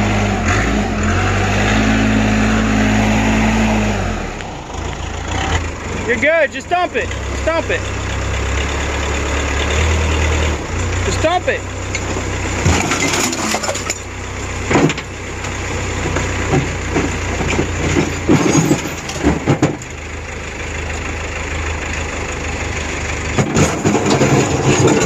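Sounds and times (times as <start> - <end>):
car engine humming: 0.0 - 25.0
knocks and rattles: 11.8 - 20.2, 23.2 - 25.0.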